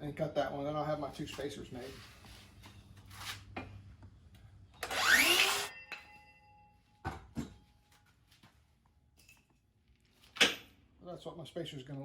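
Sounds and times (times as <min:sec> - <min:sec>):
power saw cutting wood: 0:04.8 - 0:05.7.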